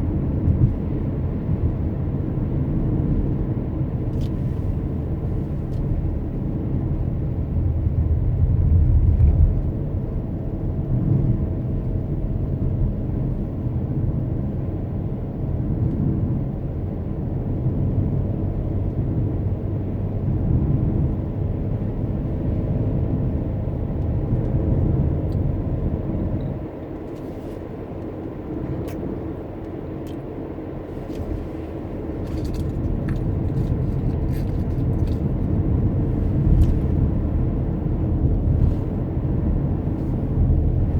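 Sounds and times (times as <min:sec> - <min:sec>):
car road and engine rumble: 0:00.0 - 0:40.9.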